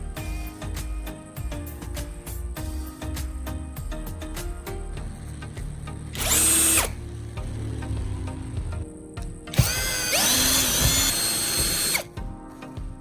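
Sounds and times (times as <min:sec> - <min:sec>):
background music: 0:00.0 - 0:13.0
power tool motor whining: 0:06.1 - 0:08.5, 0:09.5 - 0:12.1.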